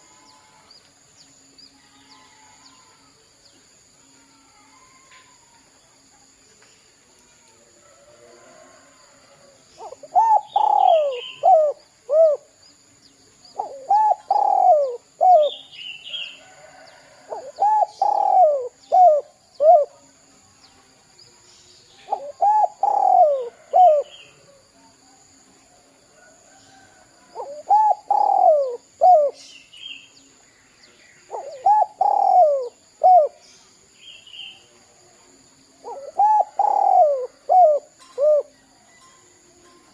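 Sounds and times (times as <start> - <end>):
dove cooing: 9.8 - 12.5, 13.6 - 15.7, 17.2 - 20.0, 22.0 - 24.2, 27.3 - 29.5, 31.3 - 33.4, 35.8 - 38.6.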